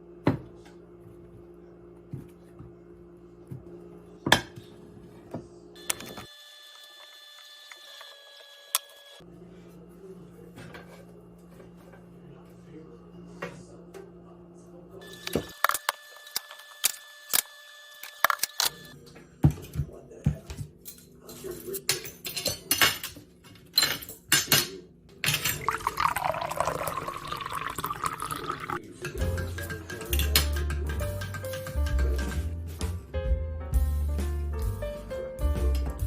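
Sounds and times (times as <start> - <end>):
glassware and dishes clinking: 20.8 - 32.4
liquid pouring: 25.5 - 28.8.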